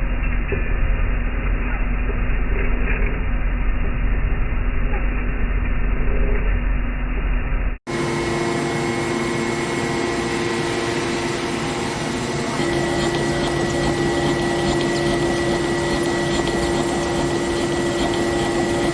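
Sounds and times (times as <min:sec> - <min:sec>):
steady hum: 0:03.7 - 0:18.9
machine-shop machinery running: 0:07.9 - 0:18.9.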